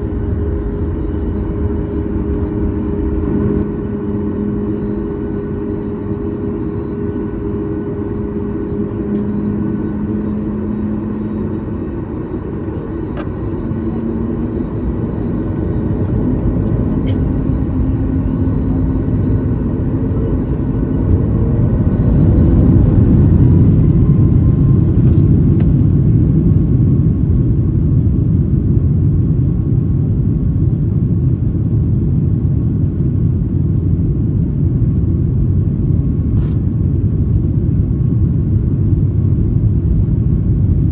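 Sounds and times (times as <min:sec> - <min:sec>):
jet engine tones: 0:00.0 - 0:26.3
deep rumble of takeoff run: 0:00.0 - 0:40.9.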